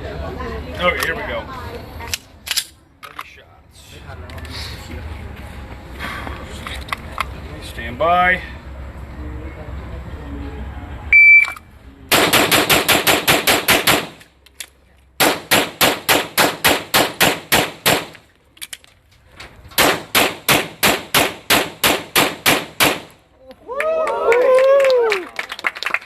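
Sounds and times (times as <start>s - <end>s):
magazine reload clicks: 2.1s - 3.3s
shot timer beep: 11.1s - 11.6s
pistol shots: 12.1s - 14.2s, 15.2s - 18.2s, 19.8s - 23.2s.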